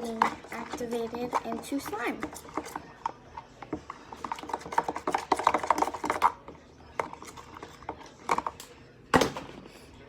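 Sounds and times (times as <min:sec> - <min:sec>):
spoon scraping a bowl: 0:00.0 - 0:08.6.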